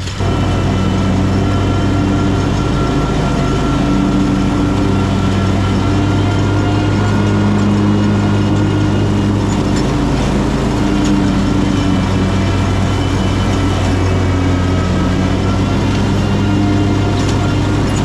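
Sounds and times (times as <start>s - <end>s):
riding mower cutting grass: 0.0s - 18.0s.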